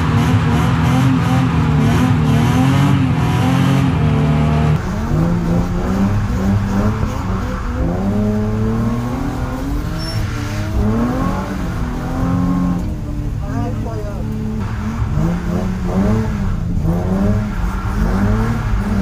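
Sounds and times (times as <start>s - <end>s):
car engine at high revs: 0.0s - 19.0s
car engine revs rising and falling: 0.0s - 19.0s.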